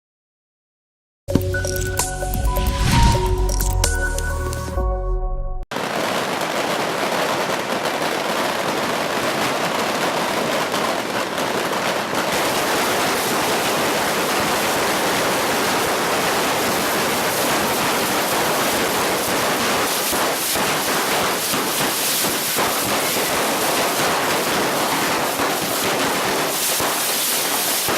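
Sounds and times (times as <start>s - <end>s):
fireworks crackling densely: 5.7s - 27.9s.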